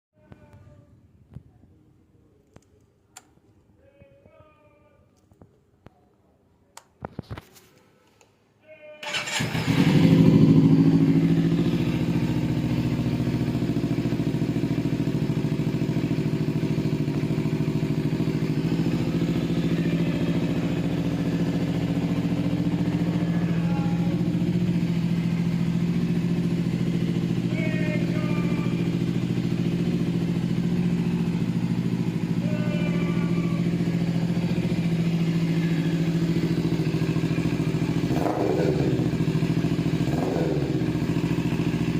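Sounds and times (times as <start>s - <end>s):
motorcycle engine starting and idling: 9.0s - 41.9s.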